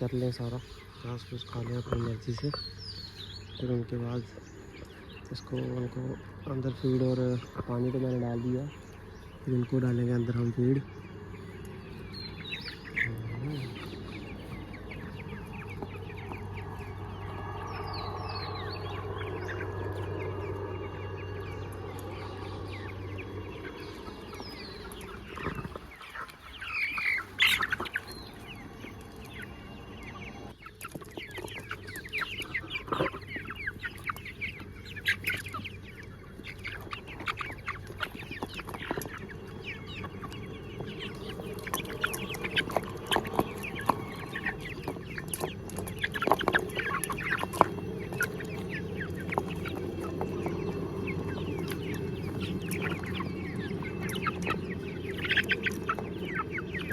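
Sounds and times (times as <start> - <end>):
chickens clucking: 0.0 - 56.9
chicken squawk: 22.8 - 29.6, 30.6 - 56.9.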